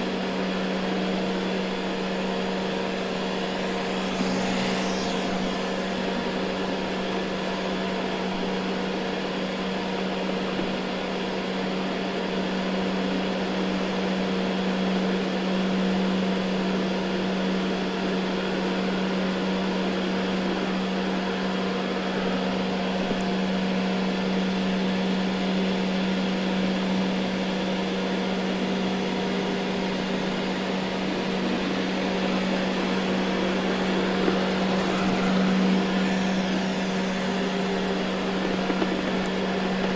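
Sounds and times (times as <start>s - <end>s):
robot vacuum motor hum: 0.1s - 8.4s, 27.4s - 39.9s
suction and brushes whirring: 0.9s - 8.0s, 29.4s - 39.9s.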